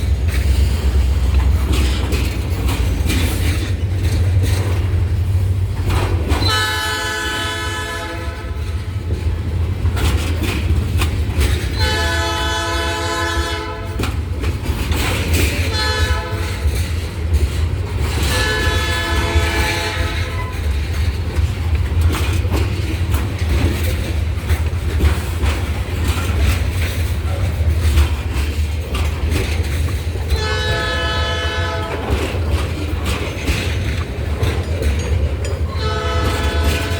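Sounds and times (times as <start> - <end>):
passing train rumble: 0.0 - 36.9
locomotive horn blasts: 6.4 - 8.8, 11.7 - 14.1, 15.6 - 16.8, 18.1 - 20.6, 30.3 - 32.3, 35.7 - 36.9.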